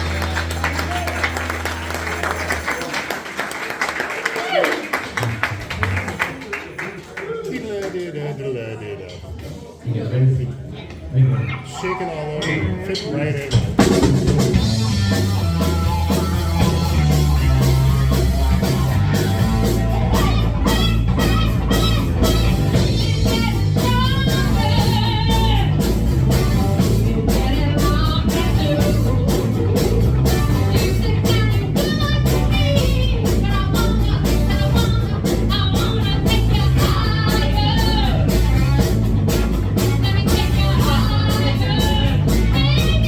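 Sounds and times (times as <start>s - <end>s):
live rock band: 0.0s - 6.9s, 10.8s - 43.0s
electric guitar lead: 13.6s - 43.0s.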